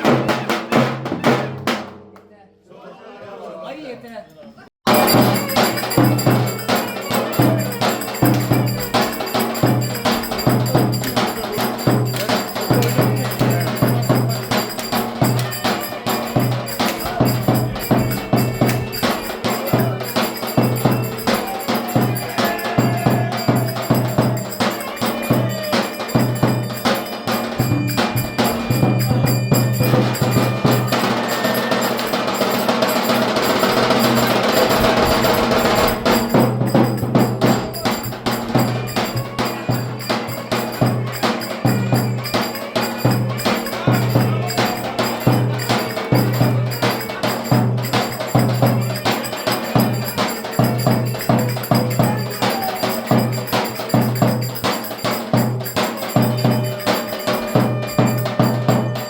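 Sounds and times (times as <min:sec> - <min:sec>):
driving drum beat: 0:00.0 - 0:02.1, 0:04.8 - 0:59.0
folk dance music: 0:04.8 - 0:59.0.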